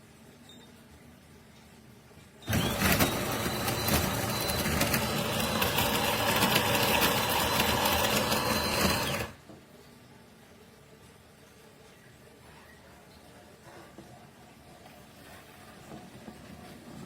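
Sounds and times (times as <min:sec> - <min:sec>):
coffee grinder grinding beans: 0:02.5 - 0:09.4.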